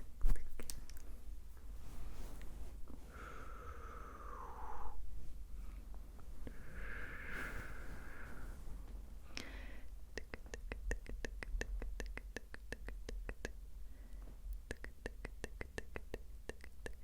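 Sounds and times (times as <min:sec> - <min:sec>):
faint mouth clicks: 0:00.3 - 0:01.1, 0:10.1 - 0:17.0
drawn-out breaths: 0:06.5 - 0:10.0.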